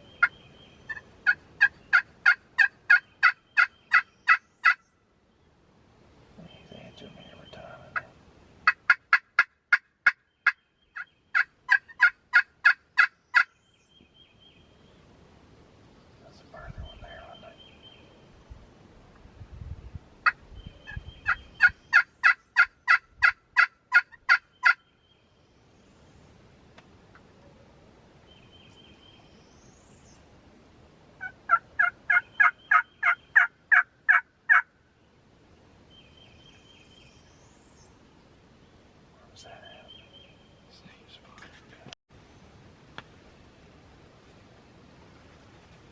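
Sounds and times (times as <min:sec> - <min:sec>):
turkey call yelps: 0:00.9 - 0:04.8, 0:21.2 - 0:24.8, 0:31.2 - 0:34.7.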